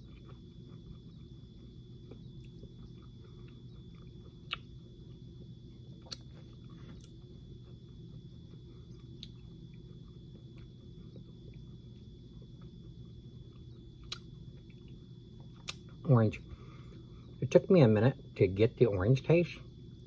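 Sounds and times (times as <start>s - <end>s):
person chewing candy: 0.0s - 16.0s
low background hum: 0.0s - 20.0s
sharp mouth clicks: 4.5s - 4.7s, 6.0s - 6.3s, 14.0s - 14.3s, 15.6s - 15.9s.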